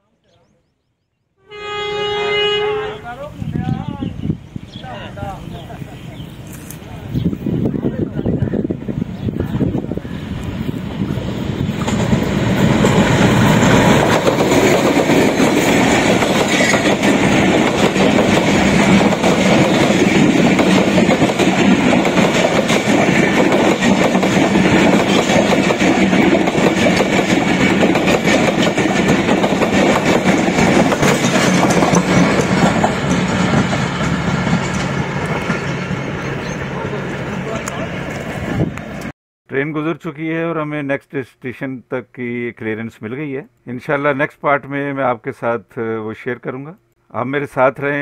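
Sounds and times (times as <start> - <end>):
train passing at speed: 1.6 - 39.1
wheels clattering over track: 11.8 - 35.7.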